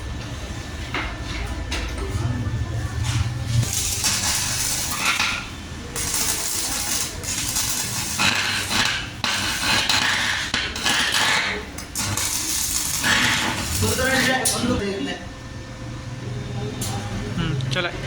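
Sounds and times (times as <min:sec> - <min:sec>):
welding arc crackling and sizzling: 0:02.8 - 0:15.2.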